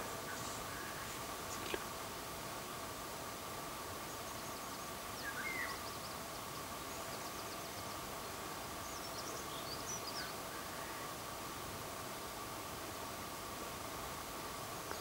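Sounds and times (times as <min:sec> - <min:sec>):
small birds calling faintly: 0:00.0 - 0:02.2, 0:03.4 - 0:11.7, 0:13.8 - 0:15.0
steady background hiss: 0:00.0 - 0:15.0.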